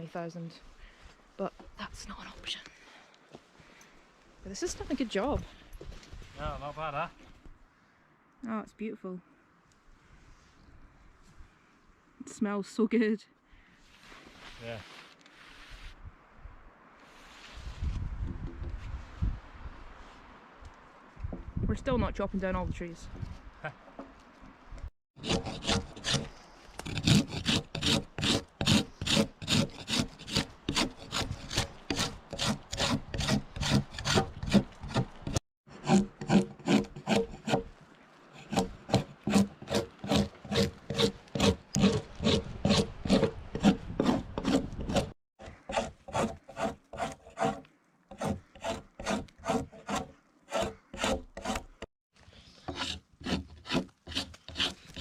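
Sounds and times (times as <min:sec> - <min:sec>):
blade shaving wood: 0:25.2 - 0:37.7, 0:38.4 - 0:55.0.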